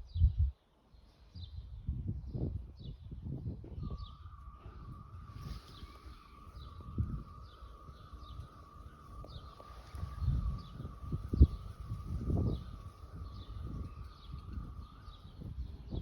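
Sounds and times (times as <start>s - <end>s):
bird chirping: 0.0s - 16.0s
wavering whistle-like tone: 3.7s - 16.0s.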